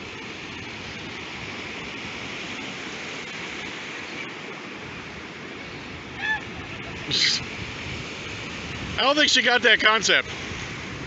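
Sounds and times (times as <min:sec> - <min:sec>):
ocean surf washing on beach: 0:00.0 - 0:11.0.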